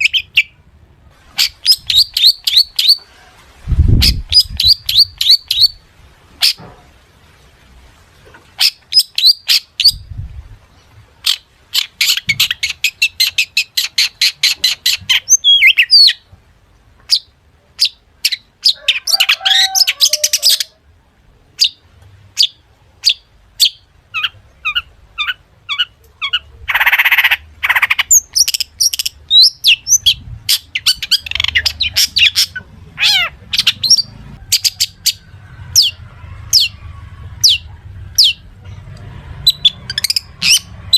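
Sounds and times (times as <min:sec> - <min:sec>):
harsh bird call: 0:17.1 - 0:20.8, 0:22.4 - 0:38.6.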